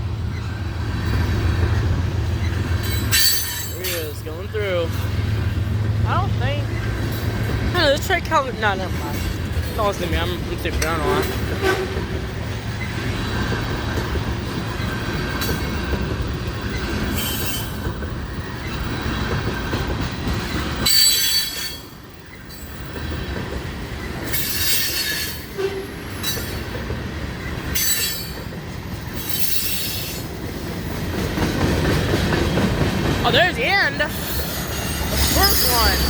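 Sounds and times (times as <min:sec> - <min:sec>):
train wheels rumbling on rail: 0:00.0 - 0:36.0
high-pitched wheel squeal: 0:20.8 - 0:21.8.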